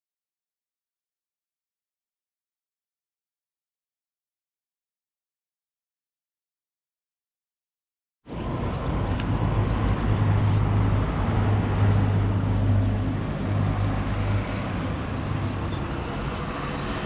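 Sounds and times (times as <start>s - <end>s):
road traffic hum: 8.3s - 17.0s.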